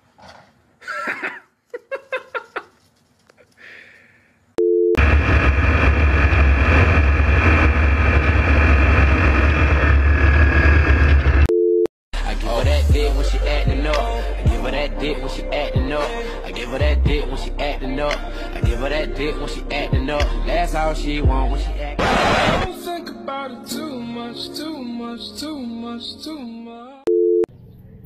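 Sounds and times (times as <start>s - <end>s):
wind rumble in open aircraft: 5.0s - 11.4s
aircraft engine: 5.0s - 11.5s
music: 12.2s - 27.0s.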